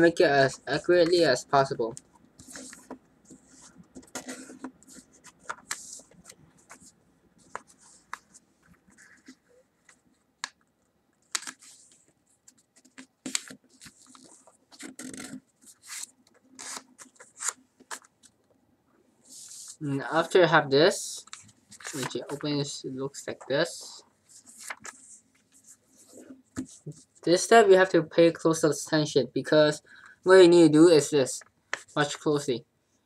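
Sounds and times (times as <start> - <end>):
paper folding rustles: 2.4 - 10.1, 11.3 - 18.4, 21.2 - 22.5, 24.2 - 27.2.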